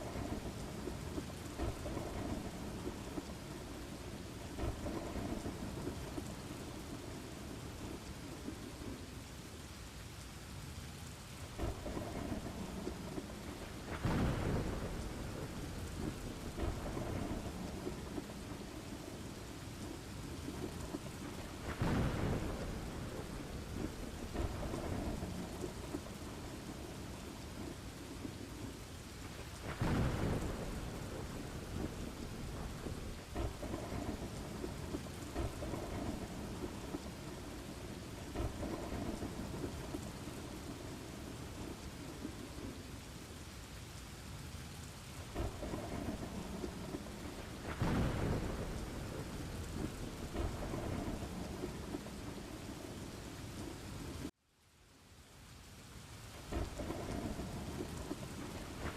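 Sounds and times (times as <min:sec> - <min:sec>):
thunder rumble: 0:00.0 - 0:09.2, 0:11.4 - 0:43.1, 0:45.0 - 0:54.3, 0:56.3 - 0:58.9
rain falling: 0:00.0 - 0:58.9.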